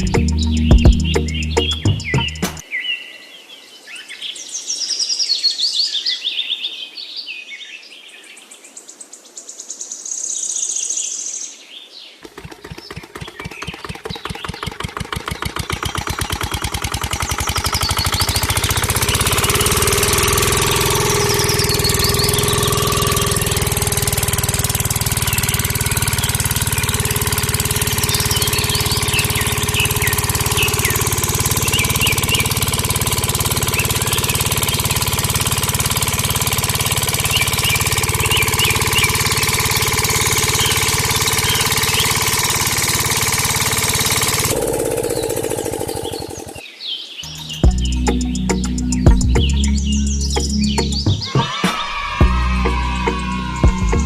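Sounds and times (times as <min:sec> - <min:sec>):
birds chirping: 0:00.0 - 0:03.4, 0:12.0 - 0:54.0
miniature engine running: 0:12.2 - 0:46.6, 0:52.2 - 0:54.0.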